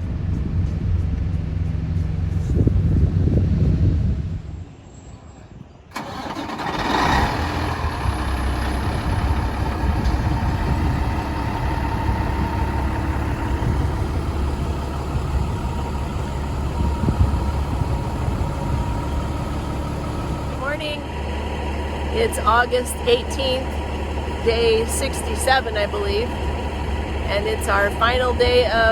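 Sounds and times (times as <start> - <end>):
diesel truck engine idling: 5.9 - 28.9.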